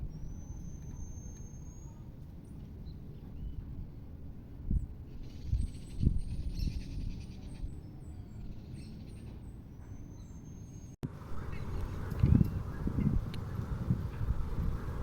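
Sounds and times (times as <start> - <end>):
faint high chirping: 0.0 - 2.2.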